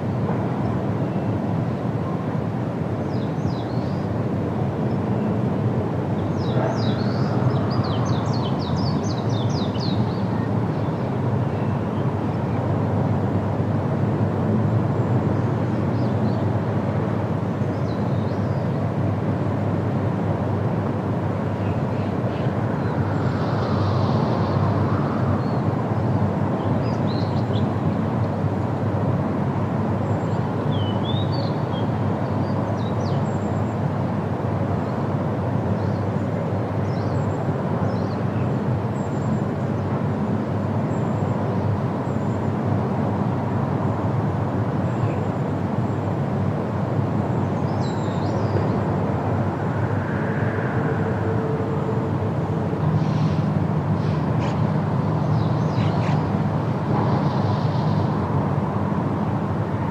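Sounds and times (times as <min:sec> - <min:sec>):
wind rustling leaves: 0:00.0 - 0:59.9.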